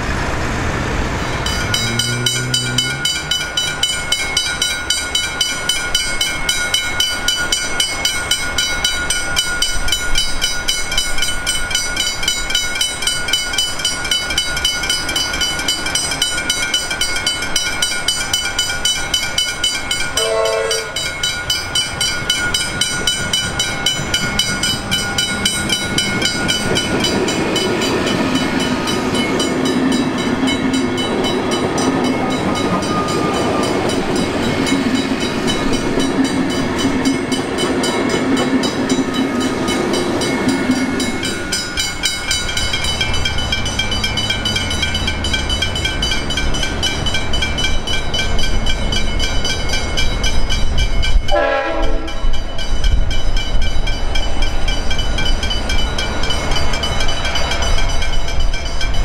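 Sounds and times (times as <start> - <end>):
train rumble: 0.0 - 59.0
crossing bells ringing: 1.2 - 59.0
train horn: 1.6 - 3.7, 20.1 - 21.1, 51.3 - 52.4.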